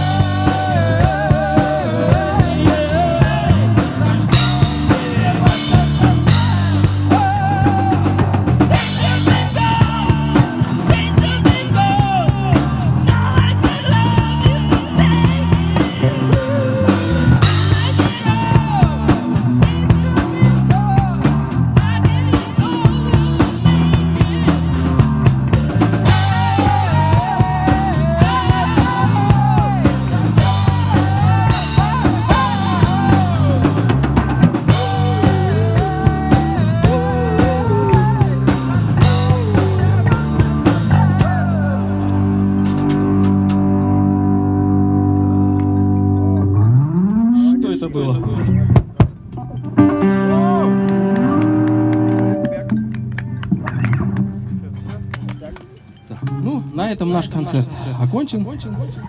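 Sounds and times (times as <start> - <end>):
drum kit beat: 0.0 - 43.8
rock band playing live: 0.0 - 46.3, 48.7 - 56.4
bending lead melody: 0.0 - 48.8, 49.5 - 57.0
low bass notes: 0.0 - 57.2.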